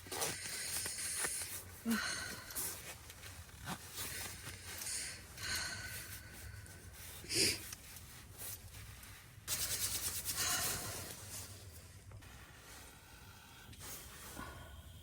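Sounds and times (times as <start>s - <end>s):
rubbing and rustling: 2.4s - 14.3s.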